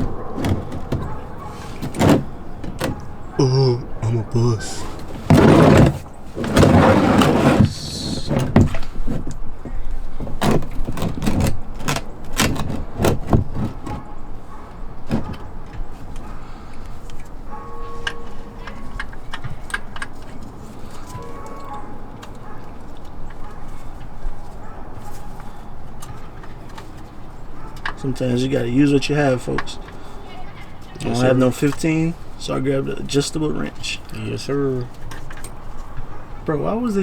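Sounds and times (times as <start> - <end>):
loud scrape: 4.8 - 8.5.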